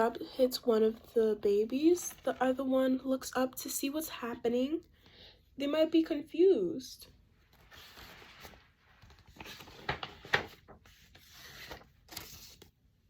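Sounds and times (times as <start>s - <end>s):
paper pages rustling: 0.9s - 2.6s, 7.4s - 12.8s.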